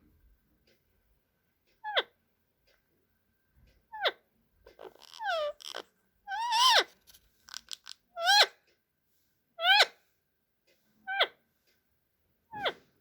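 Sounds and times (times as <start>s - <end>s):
parrot short calls: 4.8s - 6.9s.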